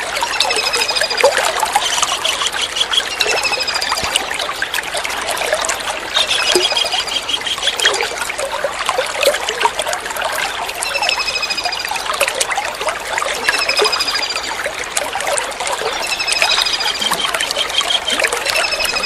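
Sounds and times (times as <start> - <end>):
water trickling: 0.0 - 19.0
kingfisher calling: 15.9 - 19.0.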